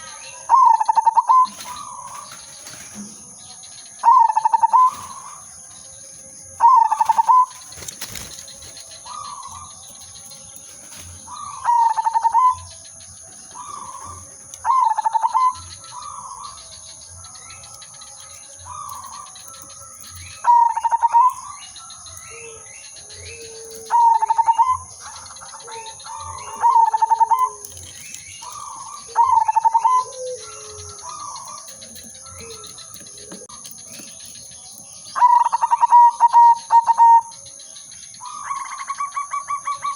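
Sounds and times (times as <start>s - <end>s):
dove cooing: 0.0s - 3.0s, 4.0s - 5.5s, 6.6s - 37.4s
faint coos of other doves: 6.6s - 34.4s.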